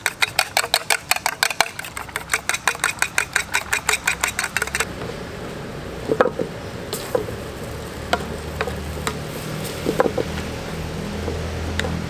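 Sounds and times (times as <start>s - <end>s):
rapid even clicking: 0.0s - 4.9s
steady hiss: 4.8s - 11.8s.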